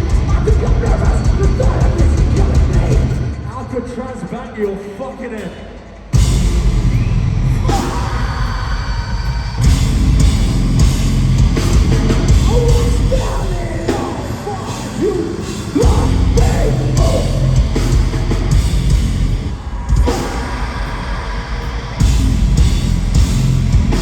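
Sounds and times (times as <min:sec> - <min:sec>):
live heavy metal band: 0:00.0 - 0:24.0.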